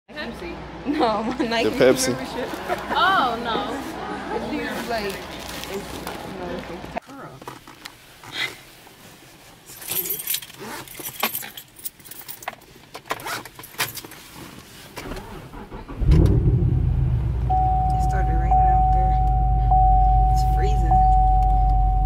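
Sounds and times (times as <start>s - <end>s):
keys jangling: 9.7s - 12.6s
car engine starting and running: 15.0s - 22.0s
dashboard chime tone: 17.5s - 22.0s.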